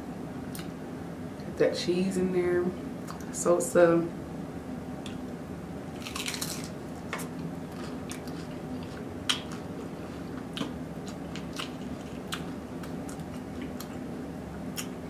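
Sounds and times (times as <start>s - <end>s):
steady low hum: 0.0s - 15.0s
crunchy taco chewing: 5.9s - 14.1s.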